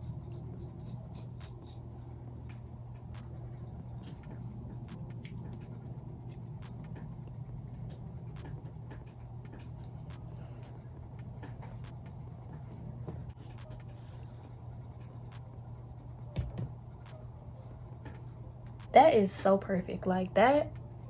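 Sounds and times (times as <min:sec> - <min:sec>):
razor cutting hair: 0:00.0 - 0:02.2
steady low hum: 0:00.0 - 0:21.0.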